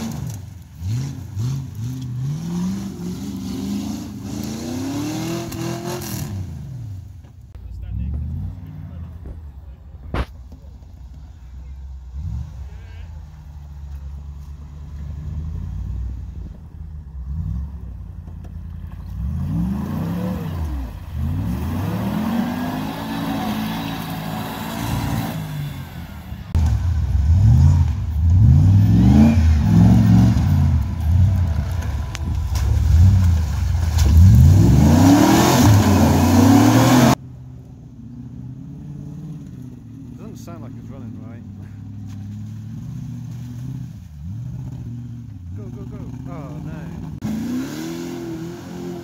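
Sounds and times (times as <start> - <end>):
off-road engine revving: 0.0 - 49.0.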